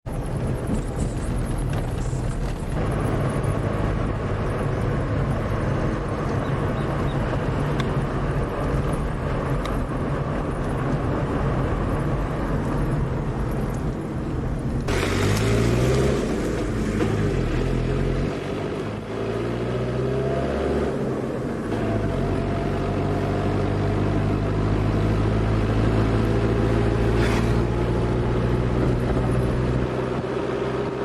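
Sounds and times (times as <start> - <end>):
road noise: 0.0 - 31.0
vehicle engine running: 0.1 - 19.7.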